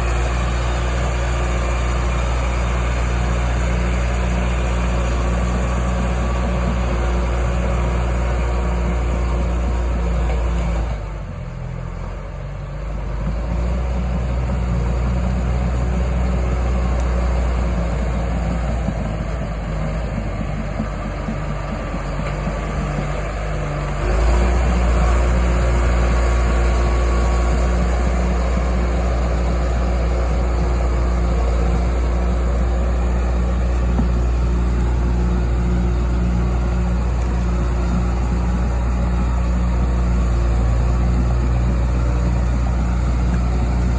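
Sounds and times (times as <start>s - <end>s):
bulldozer diesel engine running: 0.0s - 43.9s.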